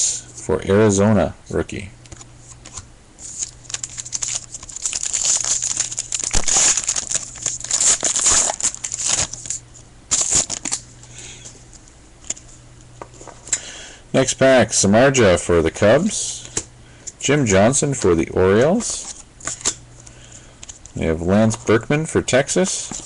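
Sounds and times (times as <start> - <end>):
wrapper tearing and crinkling: 3.3 - 10.8.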